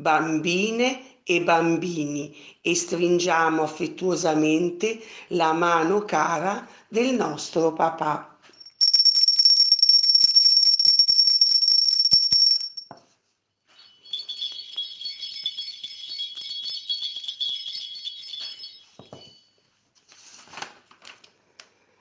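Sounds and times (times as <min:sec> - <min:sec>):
shimmering jingling sound effect: 0:08.6 - 0:12.9.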